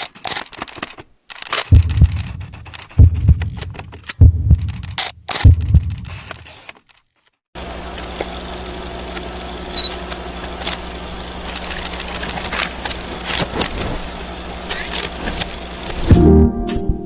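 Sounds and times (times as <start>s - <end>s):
car engine humming: 7.6s - 16.2s.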